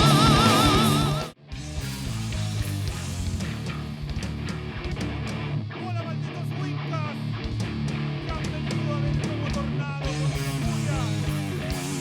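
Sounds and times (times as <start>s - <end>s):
lead guitar bending lines: 0.0s - 1.4s
distorted guitars and bass: 0.0s - 12.0s.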